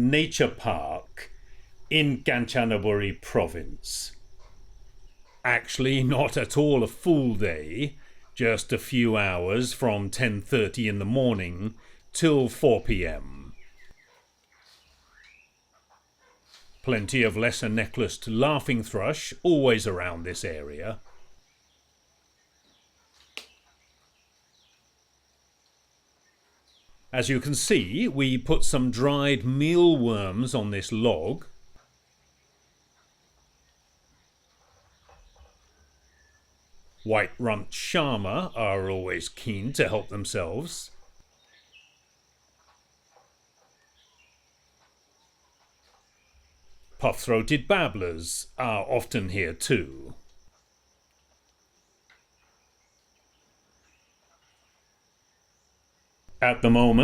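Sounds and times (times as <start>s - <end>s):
high insect drone: 0.0s - 57.0s
soft bird chirps: 13.4s - 16.9s, 21.0s - 25.0s, 31.8s - 37.1s, 40.9s - 47.0s.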